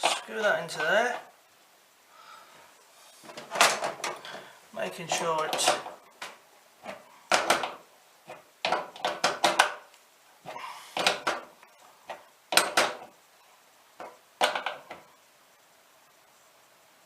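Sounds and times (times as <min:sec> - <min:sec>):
tap being screwed and tightened: 0:05.4 - 0:09.8, 0:11.0 - 0:11.5, 0:12.1 - 0:13.1.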